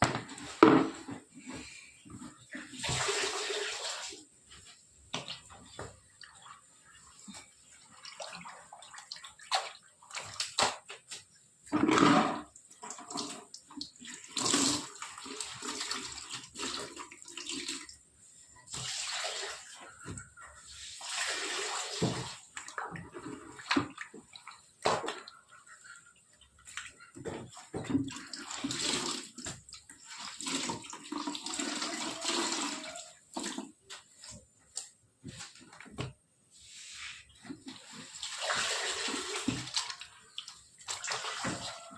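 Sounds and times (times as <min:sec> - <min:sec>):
water splashing and pouring: 0:02.5 - 0:04.3, 0:12.0 - 0:18.0, 0:18.6 - 0:25.9, 0:26.6 - 0:34.4, 0:36.6 - 0:41.9.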